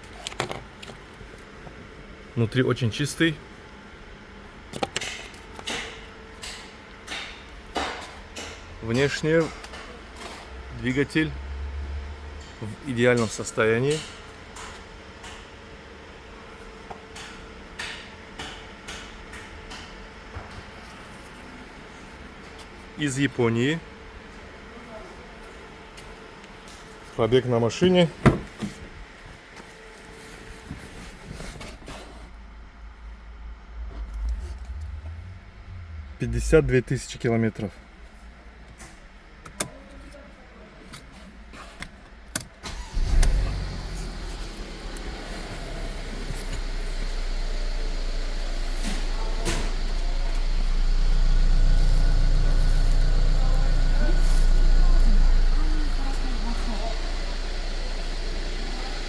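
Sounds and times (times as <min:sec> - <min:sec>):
steady low hum: 0:27.5 - 0:39.4, 0:43.0 - 0:59.0
car engine starting and running: 0:32.4 - 0:37.4, 0:42.6 - 0:59.0.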